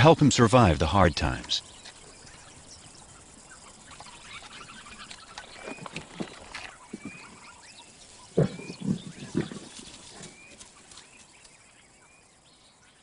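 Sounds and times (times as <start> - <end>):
lion growling: 8.2 - 10.6.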